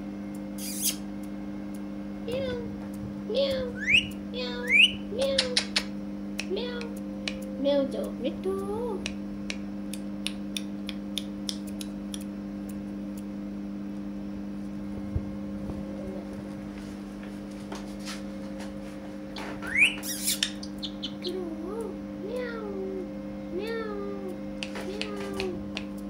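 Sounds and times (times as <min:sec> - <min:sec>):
steady low hum: 0:00.0 - 0:26.0
parakeet rising whistle: 0:00.6 - 0:01.0, 0:03.7 - 0:05.0, 0:19.6 - 0:21.3
parakeet clicking: 0:03.4 - 0:07.5, 0:09.0 - 0:12.3, 0:19.7 - 0:22.5.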